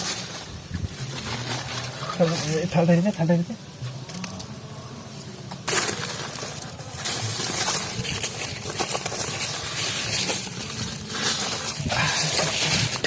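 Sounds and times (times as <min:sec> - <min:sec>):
clay crust cracking and scraping: 0:05.5 - 0:13.0.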